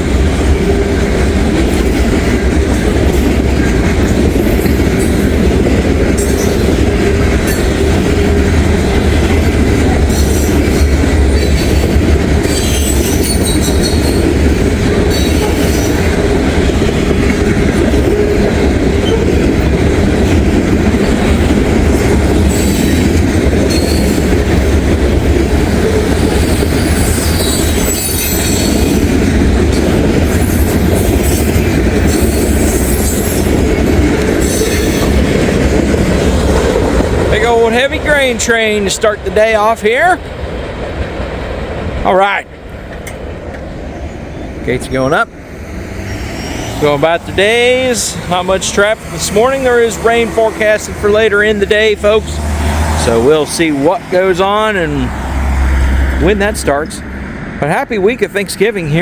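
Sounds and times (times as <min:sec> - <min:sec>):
freight train wheels rumbling: 0:00.0 - 0:59.0
train wheel squeals: 0:06.2 - 0:06.8, 0:10.1 - 0:14.5, 0:15.1 - 0:16.1, 0:22.0 - 0:24.4, 0:26.0 - 0:29.1, 0:29.7 - 0:33.8, 0:34.4 - 0:35.2, 0:45.7 - 0:47.0.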